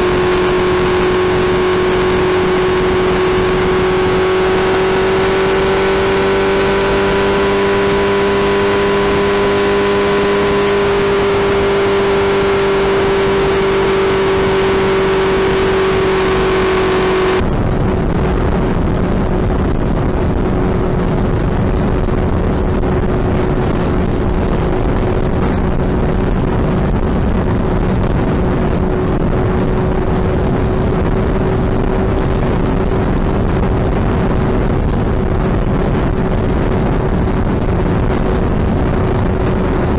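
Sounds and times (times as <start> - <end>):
motorcycle engine droning: 0.0 - 39.9
wind buffeting microphone: 17.3 - 39.9.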